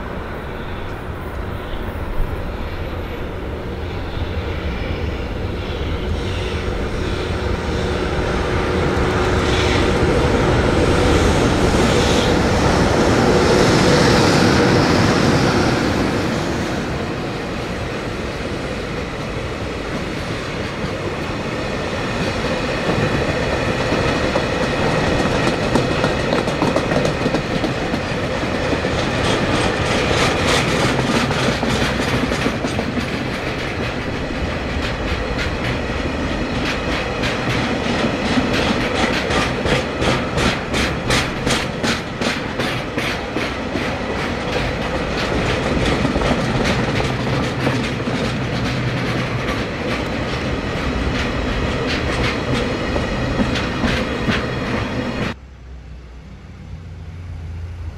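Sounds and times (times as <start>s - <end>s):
freight train rolling past: 0.0s - 57.9s
wheels clicking over rail joints: 22.9s - 55.4s.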